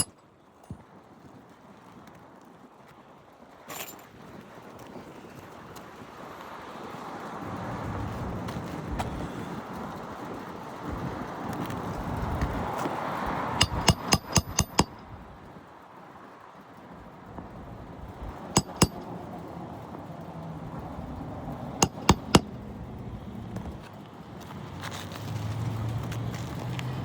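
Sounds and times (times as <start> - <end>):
metal tool clinking on shingles: 3.7 - 4.1, 13.6 - 15.0, 18.6 - 19.1, 21.8 - 22.6.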